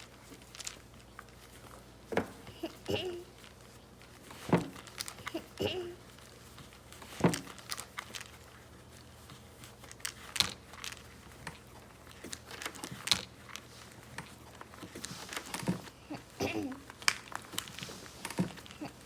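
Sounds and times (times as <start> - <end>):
toy pieces clicking and tapping: 16.6 - 18.9.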